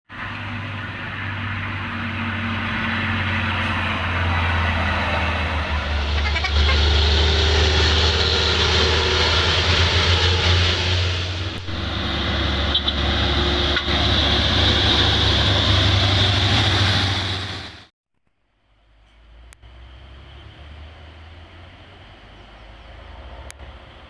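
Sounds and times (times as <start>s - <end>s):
diesel truck engine under load: 0.2s - 17.9s.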